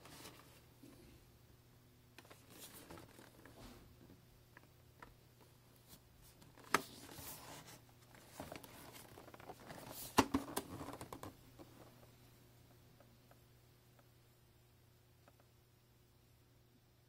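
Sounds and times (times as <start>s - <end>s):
packaging rustling: 6.4s - 11.3s.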